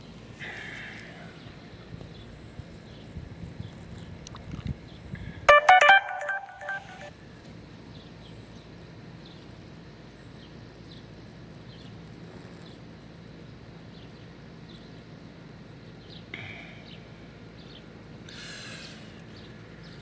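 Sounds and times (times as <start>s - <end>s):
faint high chirps: 5.5s - 7.1s.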